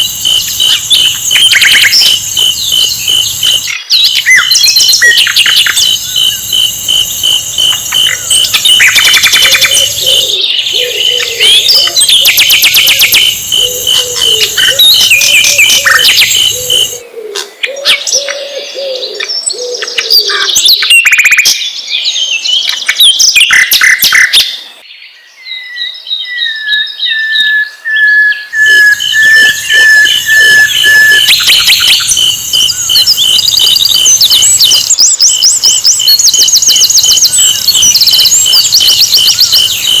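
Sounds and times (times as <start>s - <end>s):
rapid high-pitched pulsing: 0.0s - 17.0s
bird chirps and trills: 0.0s - 21.4s, 28.3s - 40.0s
falling whistled notes: 28.4s - 40.0s.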